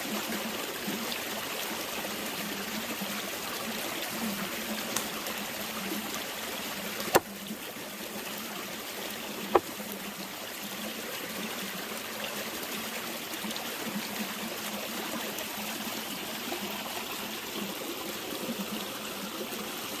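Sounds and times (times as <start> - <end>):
stream running: 0.0 - 20.0.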